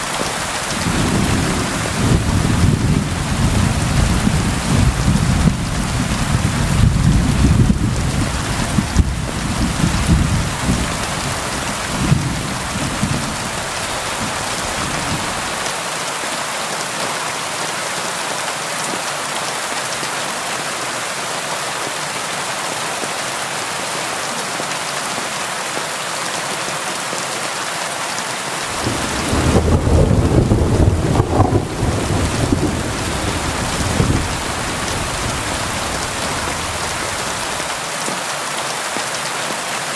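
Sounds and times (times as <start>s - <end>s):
rain falling on a window: 0.0s - 15.7s, 28.6s - 39.7s
thunder rumbling: 0.1s - 15.6s, 28.7s - 37.8s.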